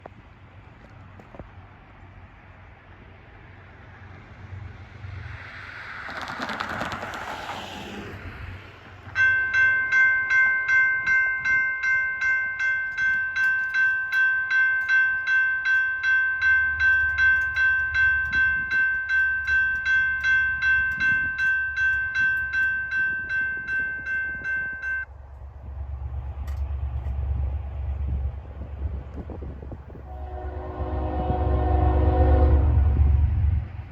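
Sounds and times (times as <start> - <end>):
railroad bell ringing: 9.1 - 25.1, 30.0 - 32.9
locomotive engine rumble: 25.1 - 33.9.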